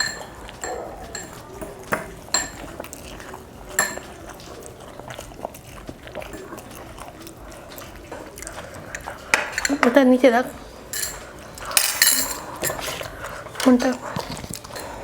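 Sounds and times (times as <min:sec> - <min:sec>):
metal spoon clinking on plate: 0:00.0 - 0:02.6, 0:03.8 - 0:04.1, 0:10.9 - 0:12.8
quiet eating sounds: 0:00.0 - 0:15.0.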